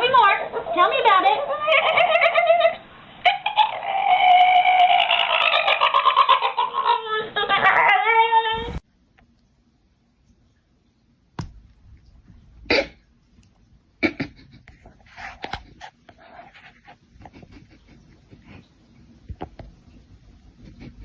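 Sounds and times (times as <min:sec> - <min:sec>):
animal breathy puffs: 0:14.2 - 0:19.1.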